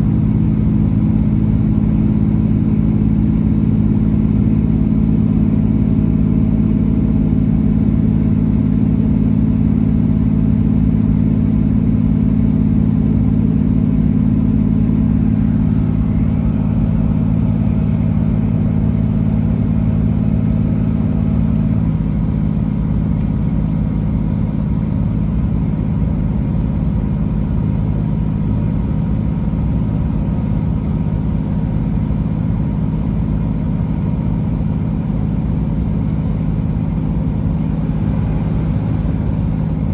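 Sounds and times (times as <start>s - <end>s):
train diesel engine droning: 0.0s - 39.9s
train rumble: 14.2s - 39.9s.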